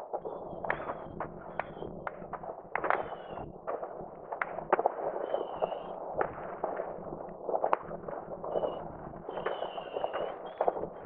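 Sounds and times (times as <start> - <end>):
distant fireworks bangs and crackles: 0.0 - 11.0
firework whistles: 0.2 - 2.0, 2.8 - 3.5, 5.2 - 6.0, 8.4 - 11.0.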